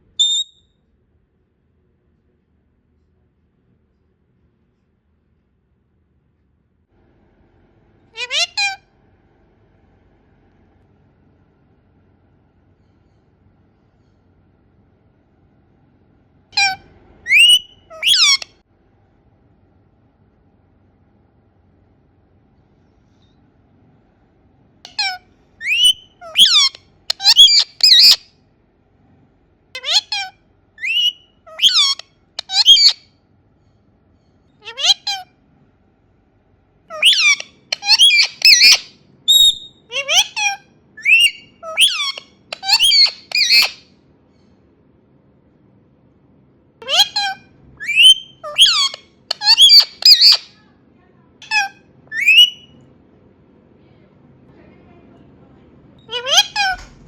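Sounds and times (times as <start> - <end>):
parrot shrill calls: 0.2 - 0.6, 8.2 - 8.8, 16.6 - 18.5, 24.9 - 28.2, 29.8 - 33.0, 34.6 - 35.3, 36.9 - 43.9, 46.8 - 50.6, 51.4 - 52.7, 56.1 - 56.8.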